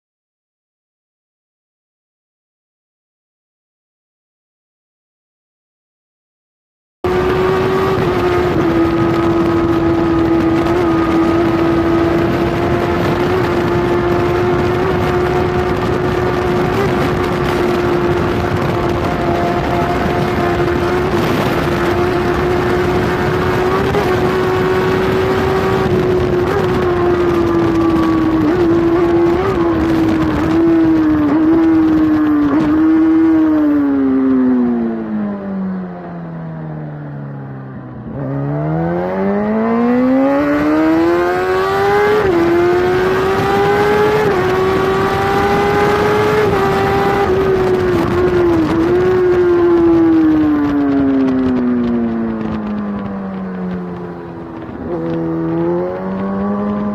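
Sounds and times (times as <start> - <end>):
wind rushing: 7.1 - 35.2, 38.0 - 56.9
motorcycle engine at high revs: 7.1 - 56.9.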